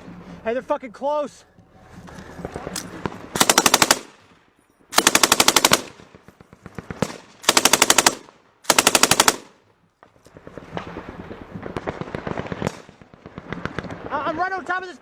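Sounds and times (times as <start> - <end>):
automatic gunfire bursts: 3.0 - 4.2, 4.9 - 9.6.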